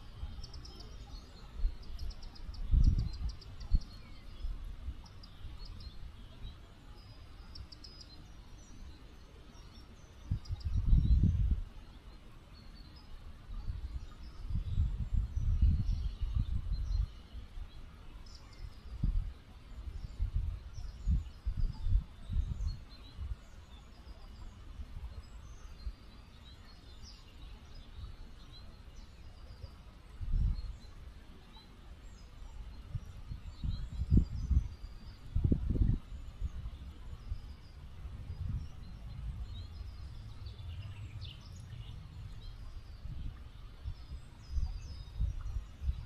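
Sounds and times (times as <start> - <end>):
birds chirping: 0.0 - 46.0
river flowing: 22.1 - 46.0
low rumbling gusts: 32.8 - 46.0.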